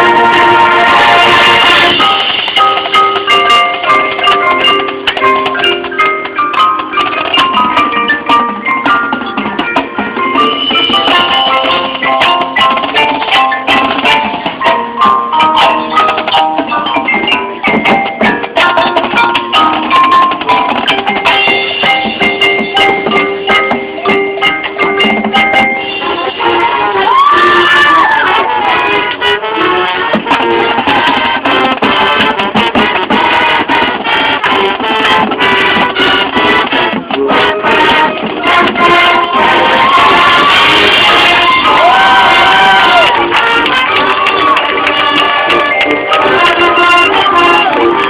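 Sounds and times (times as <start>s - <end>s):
marching band playing: 0.0s - 48.0s
marimba and xylophone notes: 0.0s - 48.0s
drum hits: 30.0s - 48.0s.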